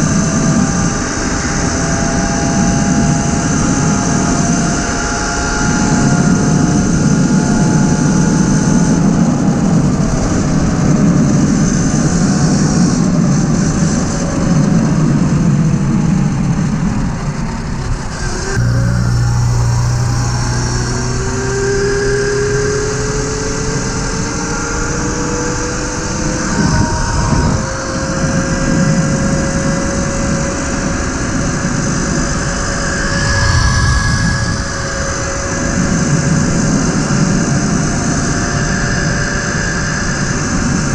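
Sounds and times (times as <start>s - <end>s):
wind noise: 0.0s - 39.5s
electric motor whining: 18.1s - 25.5s, 32.3s - 35.6s.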